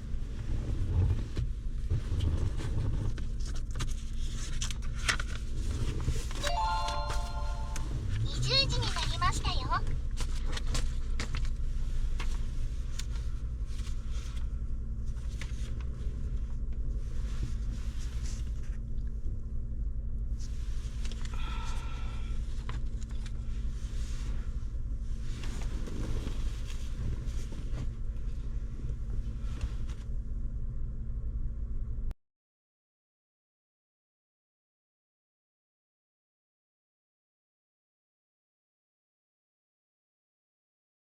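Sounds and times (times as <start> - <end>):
brief high-pitched tone: 6.4 - 8.4
vehicle engine rumble: 8.0 - 32.1.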